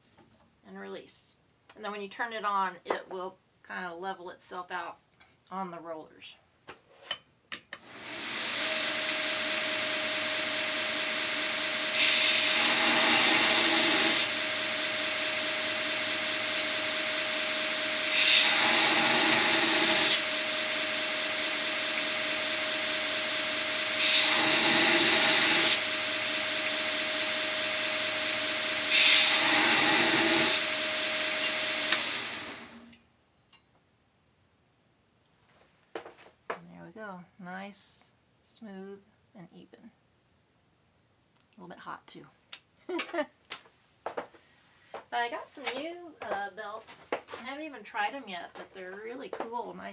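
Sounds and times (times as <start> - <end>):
belt sander motor humming: 7.8 - 32.9.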